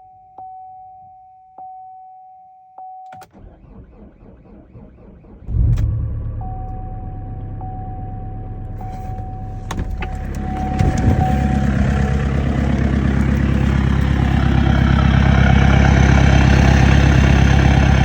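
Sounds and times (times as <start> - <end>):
diesel engine idling: 5.2 - 18.0
steady beep-like tone: 6.4 - 14.2
clicks: 8.7 - 15.1.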